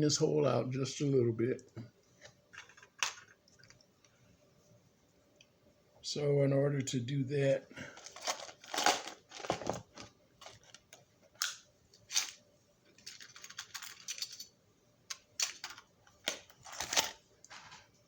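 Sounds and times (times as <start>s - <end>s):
tools clicking and clattering: 13.0s - 14.5s, 15.1s - 17.8s.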